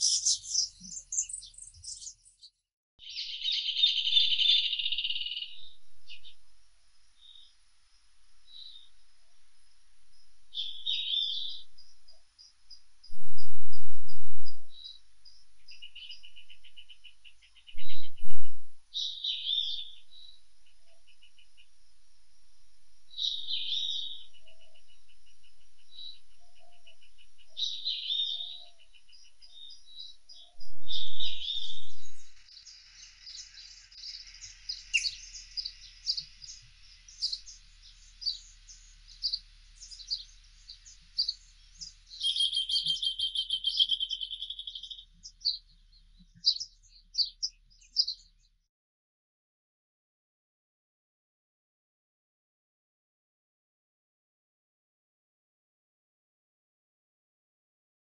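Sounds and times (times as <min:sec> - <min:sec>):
songbird repeating high phrase: 0:00.0 - 0:02.1, 0:42.2 - 0:45.0
buzzy bird trills: 0:00.0 - 0:02.5, 0:26.4 - 0:45.6
chorus of chirping birds: 0:00.0 - 0:06.4, 0:07.2 - 0:13.1, 0:14.7 - 0:21.8, 0:23.1 - 0:48.6.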